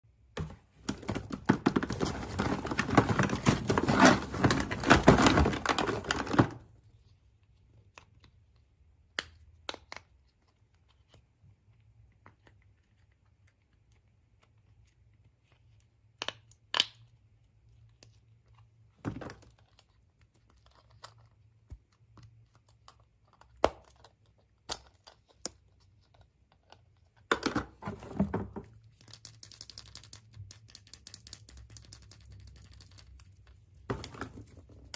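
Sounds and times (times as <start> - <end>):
packaging crinkling: 0.9 - 6.6.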